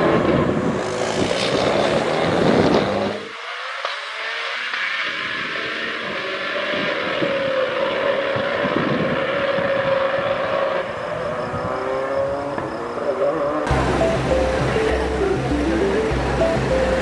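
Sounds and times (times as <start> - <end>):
road and wind noise: 0.0 - 17.0
rally car engine running: 13.6 - 17.0.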